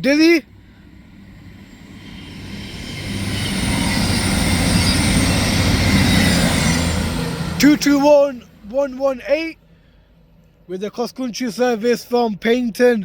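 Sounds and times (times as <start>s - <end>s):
train passing through station: 0.0s - 9.8s.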